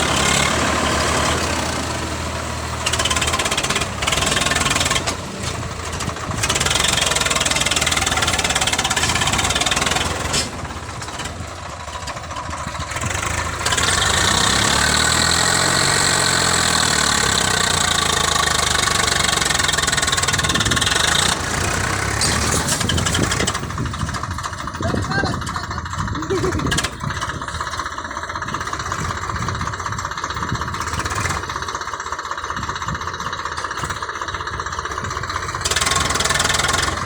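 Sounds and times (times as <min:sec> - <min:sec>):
tractor engines running: 0:00.0 - 0:37.0.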